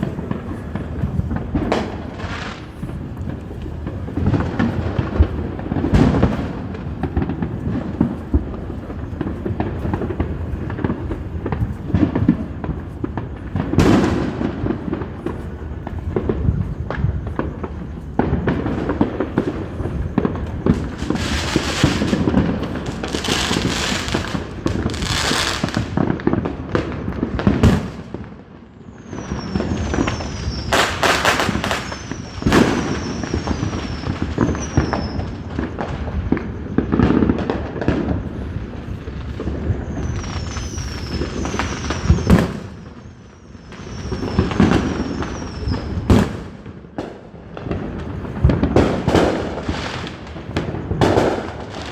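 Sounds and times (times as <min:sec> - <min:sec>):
crackling hiss: 0:00.0 - 0:51.9
fireworks bangs: 0:00.0 - 0:51.9
short falling whistles: 0:39.9 - 0:46.1.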